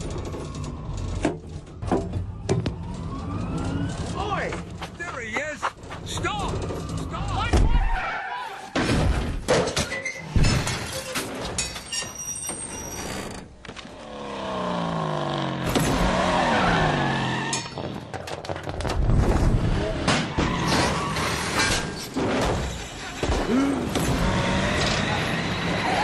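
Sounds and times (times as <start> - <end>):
cartoon vehicle engine rising and falling: 0.0 - 4.4, 13.3 - 17.7.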